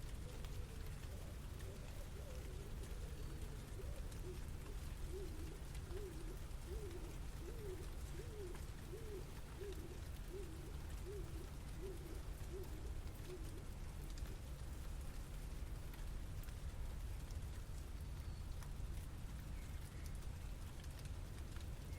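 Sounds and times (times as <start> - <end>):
bird cooing: 0.0 - 14.5
city background rumble: 0.0 - 21.9.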